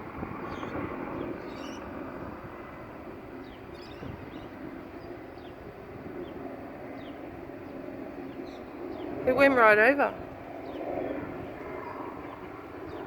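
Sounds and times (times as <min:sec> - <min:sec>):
aircraft droning overhead: 0:00.0 - 0:13.0
small birds chirping: 0:00.4 - 0:02.2, 0:03.4 - 0:13.0.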